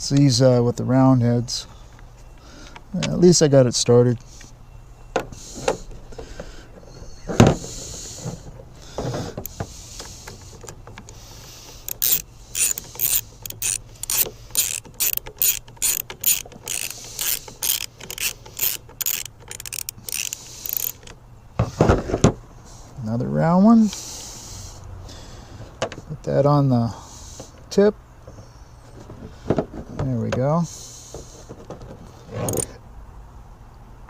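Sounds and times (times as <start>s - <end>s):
hand ratchet clicking: 9.4s - 21.2s, 32.5s - 32.7s.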